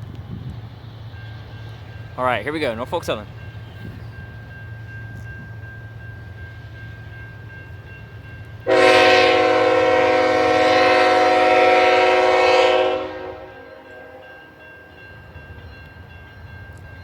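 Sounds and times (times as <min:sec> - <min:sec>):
locomotive air horn blast: 0:08.7 - 0:14.2.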